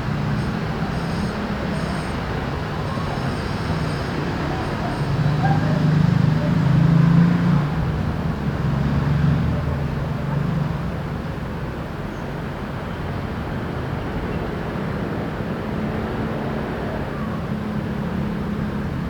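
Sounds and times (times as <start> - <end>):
background traffic hum: 0.0 - 13.5.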